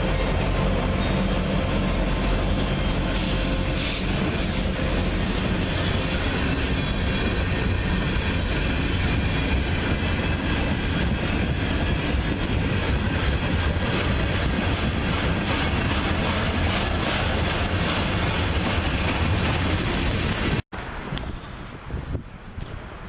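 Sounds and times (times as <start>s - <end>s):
train cars rumbling on rails: 0.0s - 22.2s
train wheel clicks: 8.1s - 20.6s.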